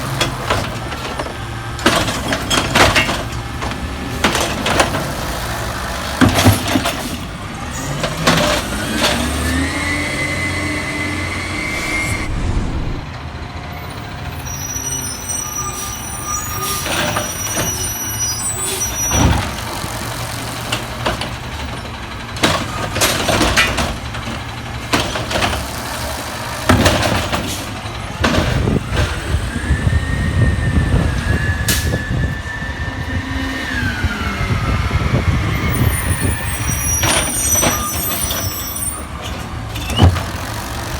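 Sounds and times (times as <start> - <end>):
truck engine revving with whine: 7.9 - 14.2, 28.9 - 36.9.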